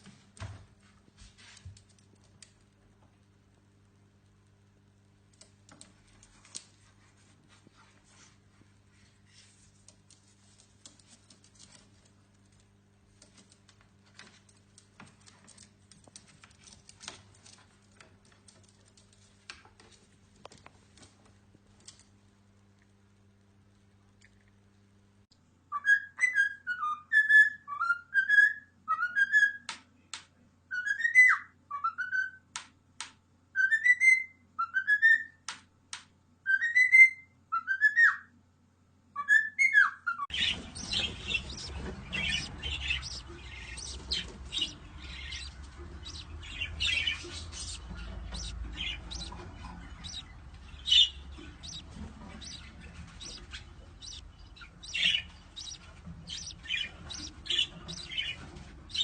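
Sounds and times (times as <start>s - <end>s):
bird chirps and squawks: 40.3s - 59.0s
low background rumble: 40.3s - 59.0s.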